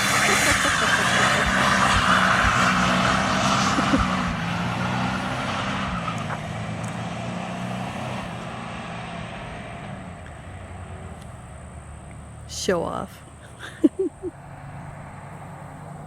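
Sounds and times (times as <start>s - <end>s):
truck engine at full throttle: 0.0s - 12.5s.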